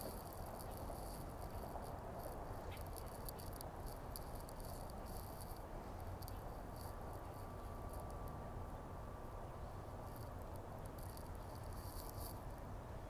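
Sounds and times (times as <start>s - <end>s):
high ticking and rustling: 0.0s - 8.2s.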